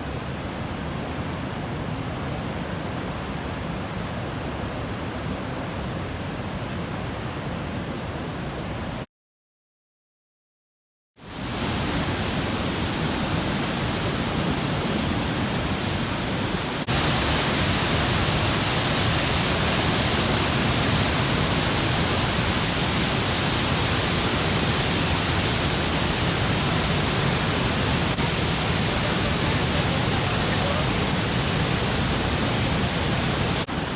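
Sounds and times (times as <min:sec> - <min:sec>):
waterfall roaring: 0:11.2 - 0:33.9.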